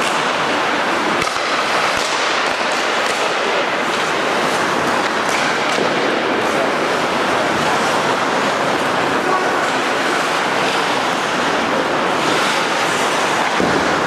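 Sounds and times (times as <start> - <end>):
sharp hockey clacks: 0.0 - 6.6, 9.6 - 14.0
rushing rink din: 0.0 - 14.0.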